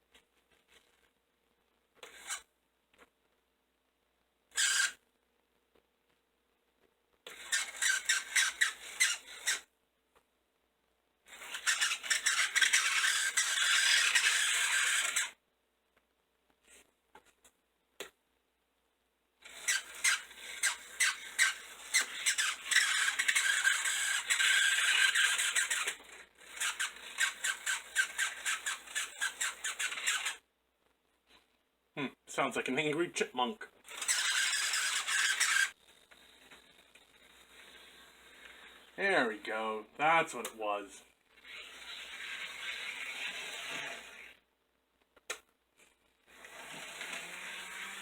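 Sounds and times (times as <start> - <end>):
model locomotive motor rasping chatter: 4.6 - 5.0, 7.3 - 9.7, 11.3 - 15.4, 19.4 - 30.4, 33.8 - 39.0, 41.4 - 44.3, 46.3 - 48.0.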